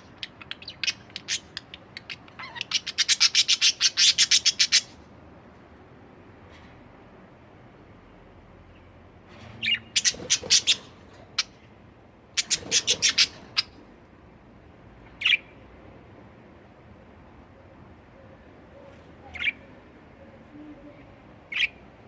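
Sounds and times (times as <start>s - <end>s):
budgerigar chirp: 9.6s - 11.6s, 12.4s - 13.8s, 21.5s - 21.8s
budgerigars squawking: 9.6s - 11.6s, 12.4s - 13.8s.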